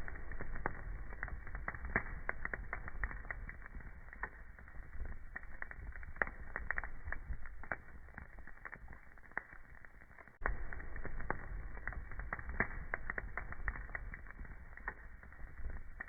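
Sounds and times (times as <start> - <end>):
fire crackling pops and snaps: 0.0 - 16.0
fire flames rumbling: 0.0 - 16.0.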